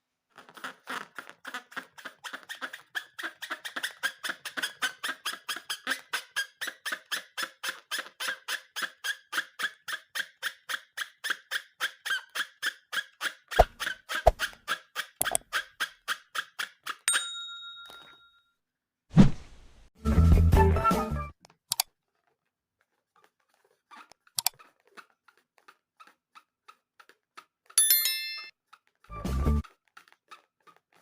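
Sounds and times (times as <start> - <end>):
rubber balloon squeaking: 0.3 - 16.6, 22.9 - 27.7, 28.9 - 31.0.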